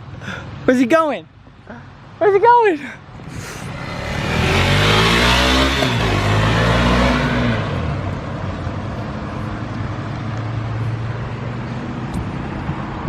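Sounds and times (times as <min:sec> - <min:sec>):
car engine pulling away: 0:03.2 - 0:08.5.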